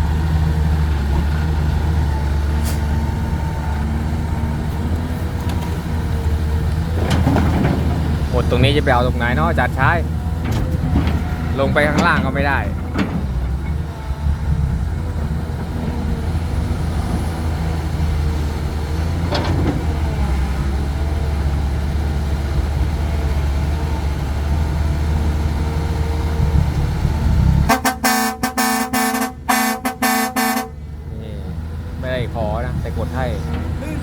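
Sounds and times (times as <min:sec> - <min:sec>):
heavy diesel engine rumbling: 0:00.0 - 0:34.0
vehicle horn tooting: 0:27.7 - 0:30.8.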